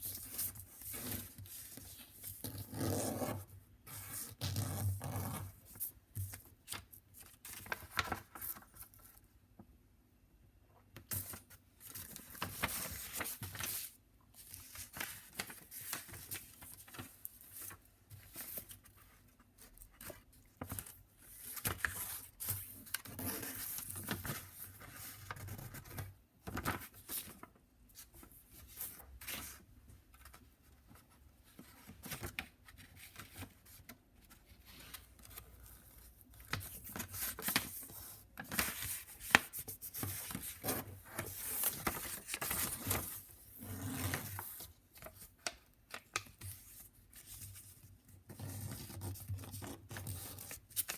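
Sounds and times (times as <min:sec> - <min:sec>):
paper rustling and crinkling: 0:04.0 - 0:09.2, 0:11.0 - 0:50.9.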